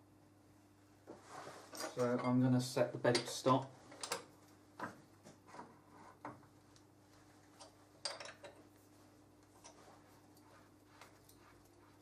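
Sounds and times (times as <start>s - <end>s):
low steady hum: 0.0s - 12.0s
faint metallic clicks and knocks: 3.1s - 6.9s.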